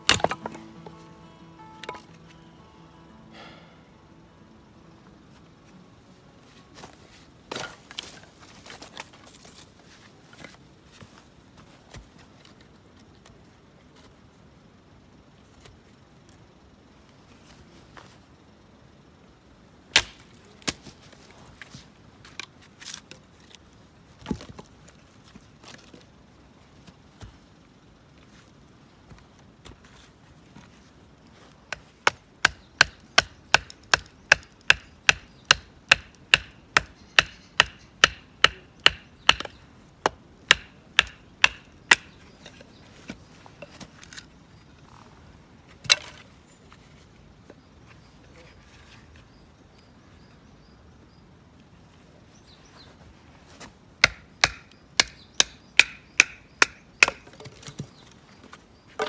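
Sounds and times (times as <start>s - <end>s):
wood chopping blows: 0.0s - 1.0s, 31.8s - 42.2s, 54.0s - 57.4s.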